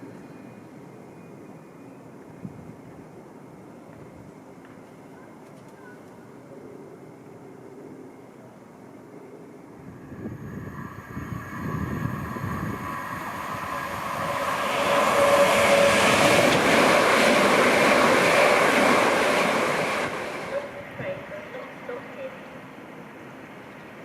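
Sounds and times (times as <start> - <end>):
train passing with whine: 6.1 - 24.0.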